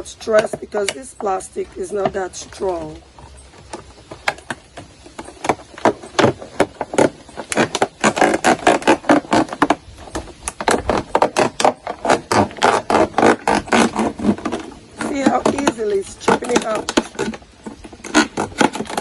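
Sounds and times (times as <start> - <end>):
knife cutting plastic bottle: 5.3 - 19.0.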